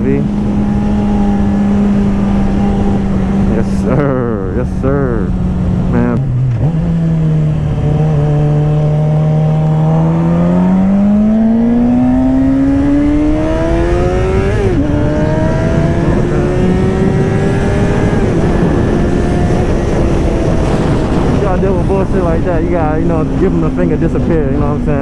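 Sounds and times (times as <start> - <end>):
motorcycle engine accelerating: 0.0 - 25.0
wind rumble: 0.0 - 25.0.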